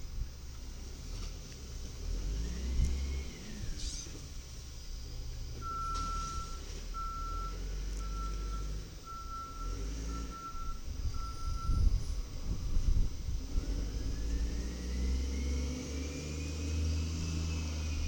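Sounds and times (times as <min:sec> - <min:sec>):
truck engine rumble: 0:00.0 - 0:18.0
truck backup alarm beeping: 0:05.6 - 0:12.0.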